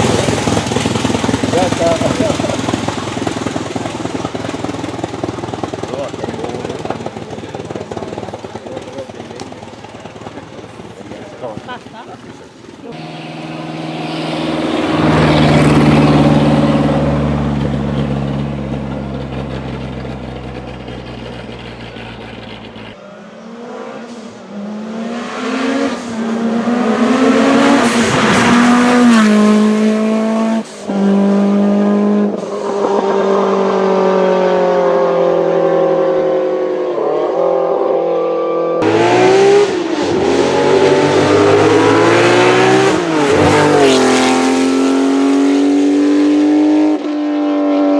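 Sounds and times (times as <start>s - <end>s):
racing car passing: 0.0s - 47.9s
racing car accelerating through upshifts: 12.9s - 47.9s.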